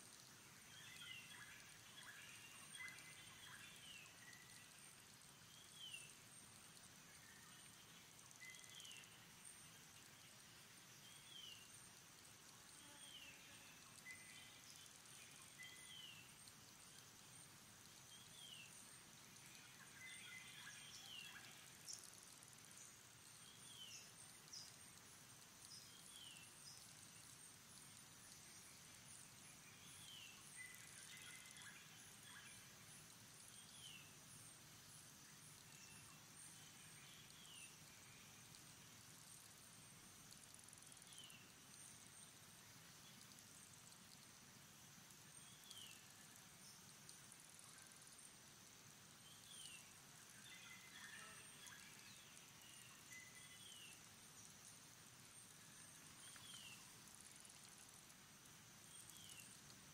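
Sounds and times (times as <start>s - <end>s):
high-pitched insect hum: 19.4s - 59.9s.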